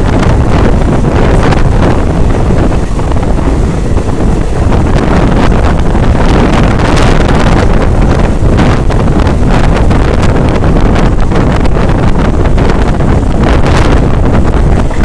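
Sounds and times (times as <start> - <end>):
moving train rumble: 0.0 - 15.0
wind buffeting microphone: 0.0 - 15.0.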